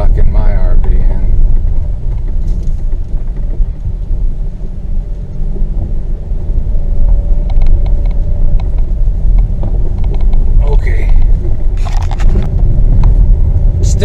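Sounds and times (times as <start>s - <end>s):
car tyres rumbling on dirt track: 0.0s - 14.0s
light clicks and rattles: 7.4s - 13.2s.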